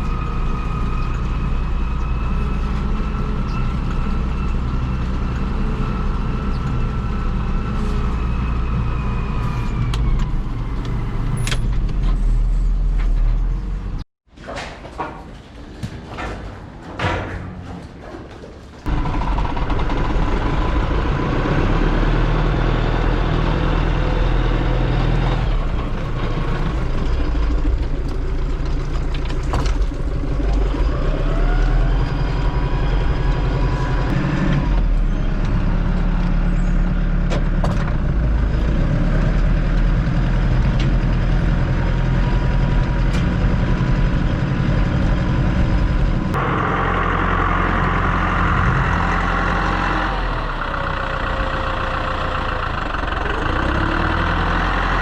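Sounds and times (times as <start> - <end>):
farm vehicle engine running: 0.0 - 14.0, 18.8 - 55.0
rising whine: 44.6 - 50.8.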